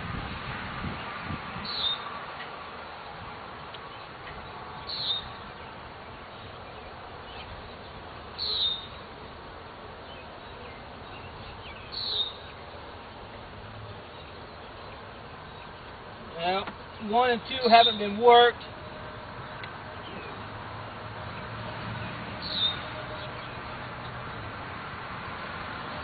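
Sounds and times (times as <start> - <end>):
bird calling high note: 17.0 - 18.6.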